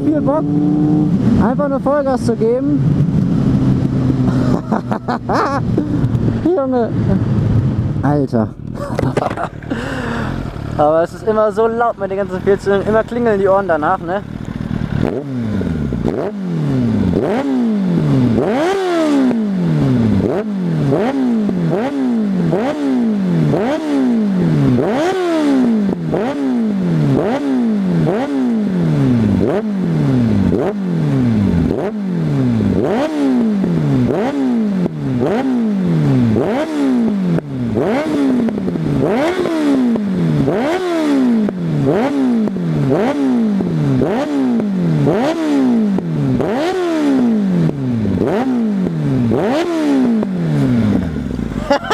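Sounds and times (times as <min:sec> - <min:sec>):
motorcycle engine revving: 0:00.0 - 0:51.9
exhaust backfire pops: 0:08.6 - 0:09.7.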